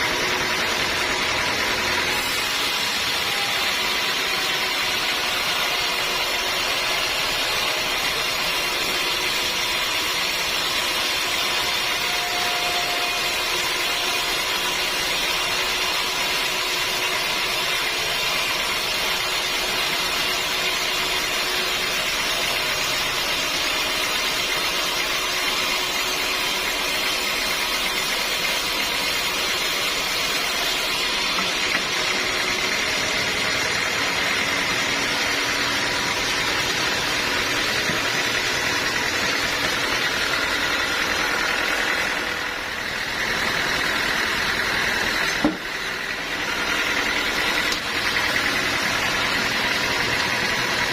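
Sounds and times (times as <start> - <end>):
sawmill saw hissing: 0.0 - 50.9.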